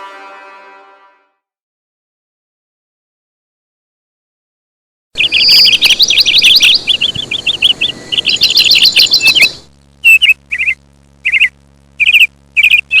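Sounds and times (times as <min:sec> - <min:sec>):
small bird chirping: 0:05.2 - 0:13.0.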